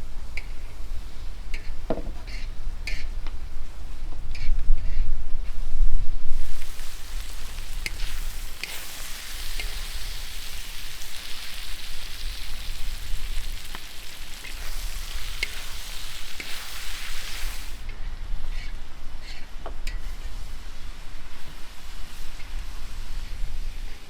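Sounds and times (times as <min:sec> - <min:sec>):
food sizzling in hot oil: 0:06.3 - 0:17.9
oil popping and crackling: 0:06.3 - 0:17.9.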